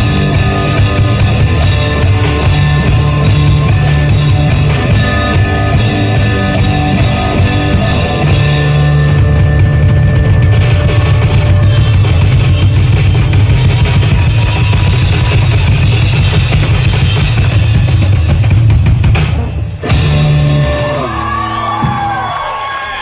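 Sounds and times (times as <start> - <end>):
live rock band playing: 0.0 - 22.4.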